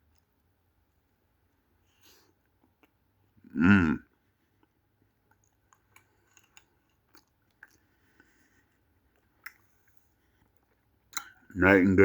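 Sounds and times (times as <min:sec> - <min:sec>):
mouth chewing clicks and smacks: 0:02.4 - 0:03.0, 0:04.6 - 0:11.5.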